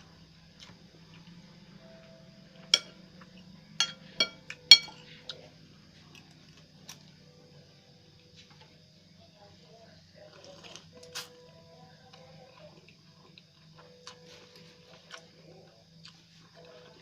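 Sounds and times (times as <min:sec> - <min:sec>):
cutlery clinking against a plate: 0:02.8 - 0:03.0, 0:03.8 - 0:05.0.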